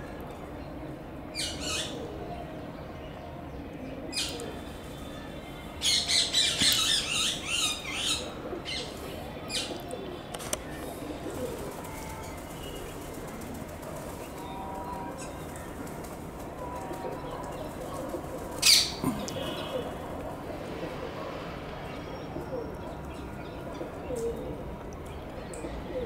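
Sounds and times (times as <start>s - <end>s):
harsh squawking bird calls: 18.6s - 20.0s.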